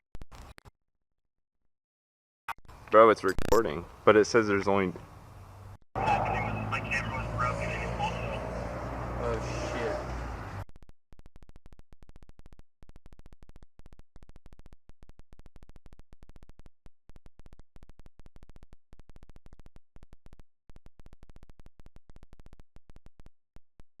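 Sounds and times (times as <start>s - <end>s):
fast regular digital clicks: 10.8s - 23.9s.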